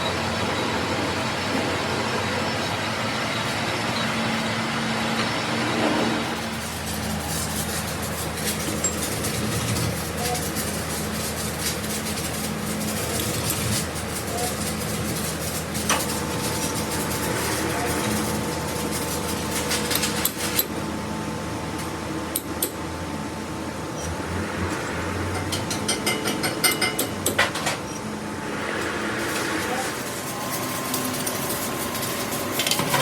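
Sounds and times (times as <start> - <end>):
workshop machinery humming: 0.0 - 33.0
high steady whine: 27.6 - 33.0.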